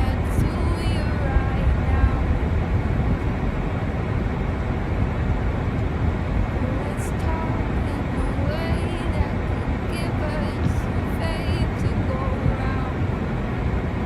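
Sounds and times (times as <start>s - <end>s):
low rumbling outdoor noise: 0.0s - 14.0s.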